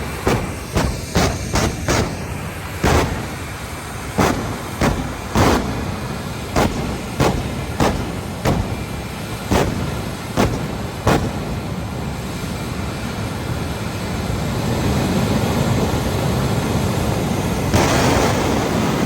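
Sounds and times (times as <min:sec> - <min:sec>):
short sharp bursts: 0:00.0 - 0:12.7, 0:17.7 - 0:19.0
jet engine rumble: 0:00.0 - 0:19.0.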